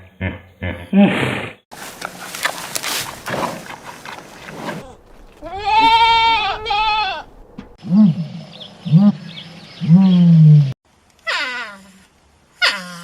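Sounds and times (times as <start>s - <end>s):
goat bleating: 4.8s - 7.3s.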